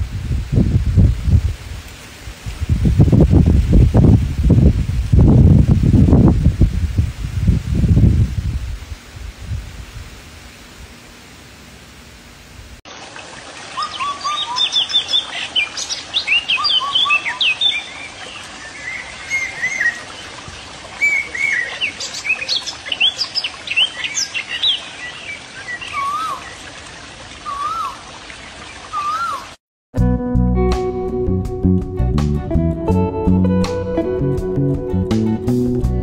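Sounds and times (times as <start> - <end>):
wavering whistled bird phrase: 13.8 - 18.0, 18.8 - 20.1, 21.0 - 26.6, 27.4 - 28.0, 28.9 - 29.5
small birds chirping: 13.8 - 26.8.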